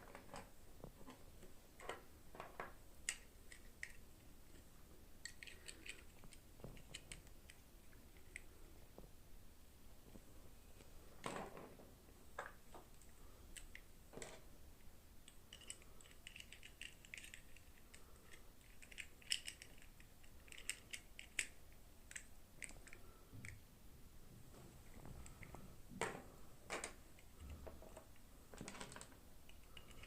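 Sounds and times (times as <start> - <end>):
plastic clicks and crinkles: 0.0 - 8.6, 15.2 - 23.6, 24.8 - 30.0.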